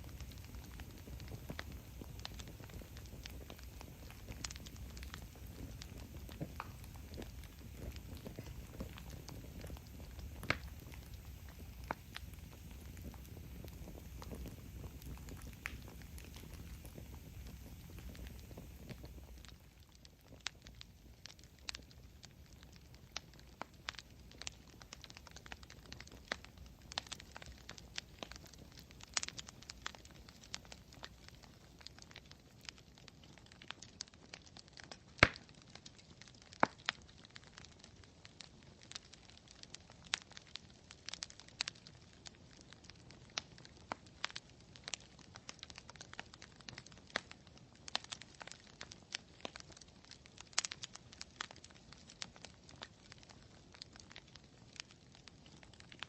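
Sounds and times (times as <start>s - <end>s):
low hiss: 0.0s - 32.6s
campfire crackling and popping: 0.0s - 56.0s.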